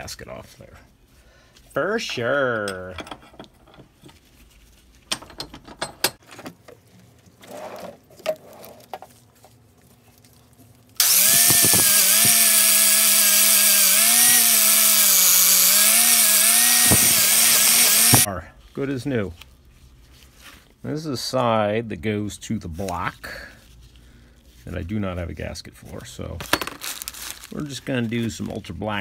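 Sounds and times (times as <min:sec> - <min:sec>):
handheld power tool running: 0:11.0 - 0:18.3.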